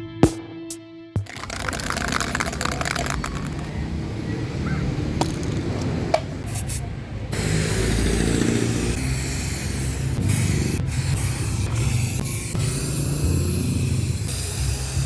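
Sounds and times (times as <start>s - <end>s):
spray paint can hissing: 1.2s - 3.7s, 6.4s - 15.0s.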